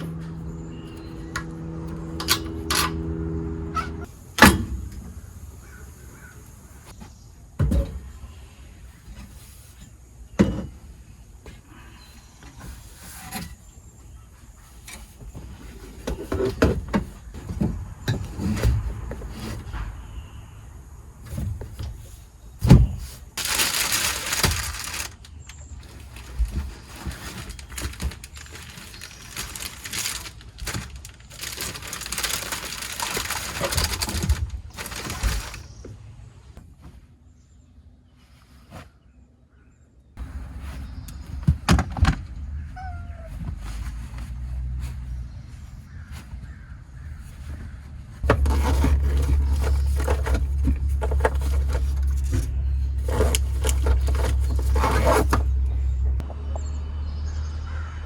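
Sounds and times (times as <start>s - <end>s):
rustling: 21.3s - 35.8s, 42.8s - 56.2s.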